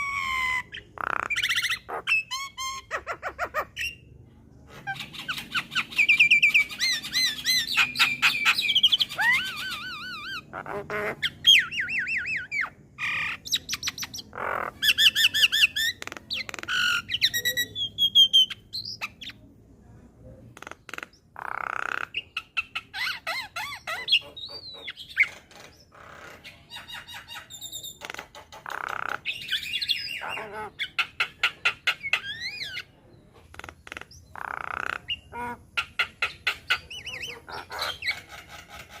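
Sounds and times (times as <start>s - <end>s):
bird singing squawks and whistles: 0.0s - 4.1s, 4.7s - 19.4s, 21.0s - 28.0s, 28.7s - 33.0s.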